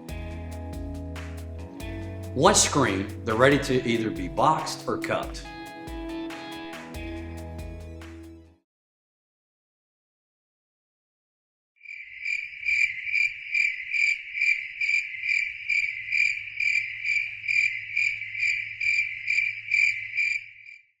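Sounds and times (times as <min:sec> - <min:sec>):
cricket chirping: 0:11.8 - 0:20.9.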